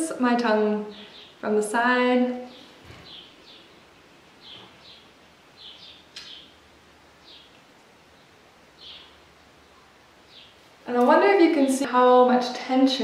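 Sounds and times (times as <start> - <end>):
high bird chirps: 4.4 - 6.6, 8.2 - 10.6
sharp click: 6.1 - 6.4.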